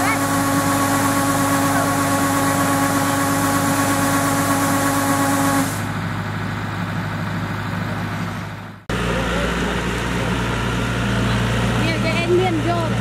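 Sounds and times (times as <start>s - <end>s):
machine whine and hiss: 0.0s - 6.0s
combine harvester engine hum: 0.0s - 13.0s.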